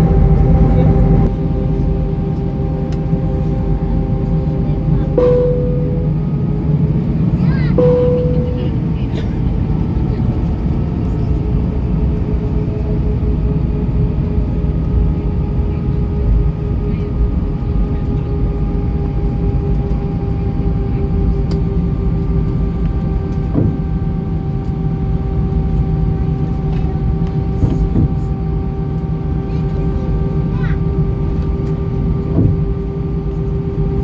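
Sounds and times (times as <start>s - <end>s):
jet engines rumbling and whining: 0.0s - 11.2s.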